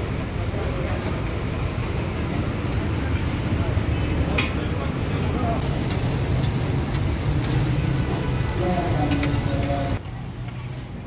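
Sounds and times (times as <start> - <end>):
street traffic hum: 0.0 - 11.0
liver sizzling in oil: 5.6 - 10.0.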